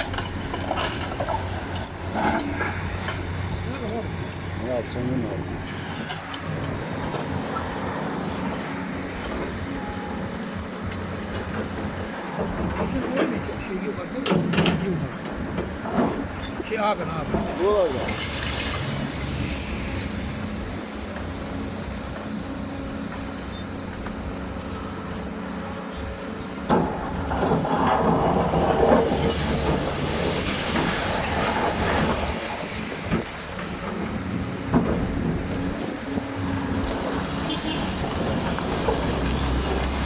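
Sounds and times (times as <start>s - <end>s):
excavator diesel engine running: 0.0s - 16.6s.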